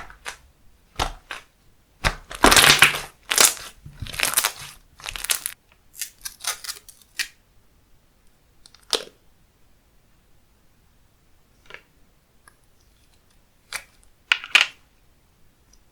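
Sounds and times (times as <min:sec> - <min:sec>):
slime squishing and crackling: 0:01.0 - 0:07.2.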